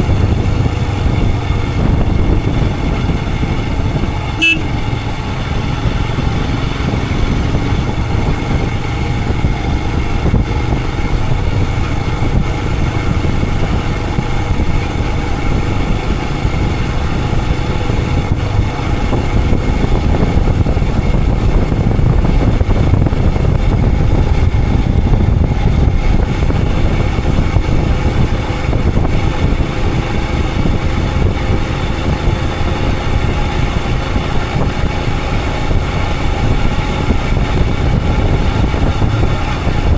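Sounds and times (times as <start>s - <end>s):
motorcycle engine rumbling: 0.0s - 39.9s.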